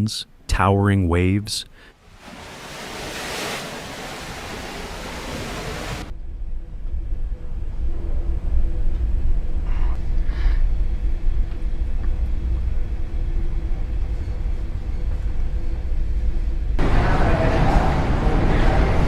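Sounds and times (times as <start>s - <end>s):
ship engine rumbling: 1.8s - 6.2s, 10.8s - 19.0s.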